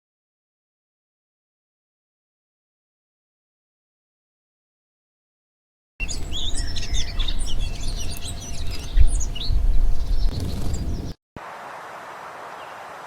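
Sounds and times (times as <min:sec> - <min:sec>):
uneven low rumble: 0:06.0 - 0:11.1
small birds chirping: 0:06.0 - 0:11.2.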